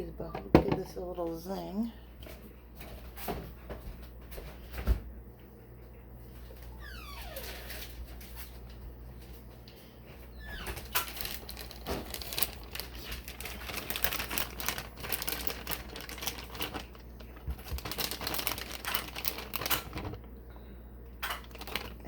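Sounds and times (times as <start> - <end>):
plastic packaging crinkling: 10.6 - 20.4, 21.2 - 22.0.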